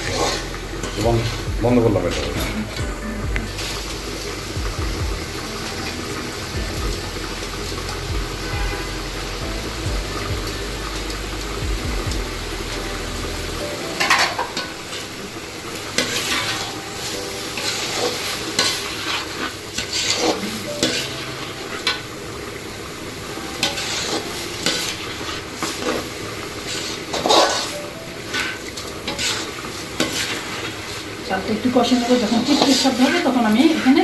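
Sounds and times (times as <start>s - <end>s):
spatula scraping pot: 0.0s - 2.9s, 16.0s - 22.0s, 23.6s - 31.0s, 32.1s - 34.0s
low hum: 0.0s - 13.9s
rice frying and sizzling: 0.0s - 34.0s.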